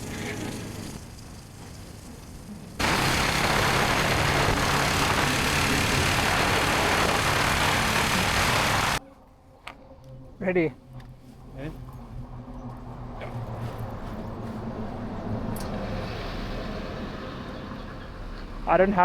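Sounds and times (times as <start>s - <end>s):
motorcycle engine running: 2.8s - 9.0s.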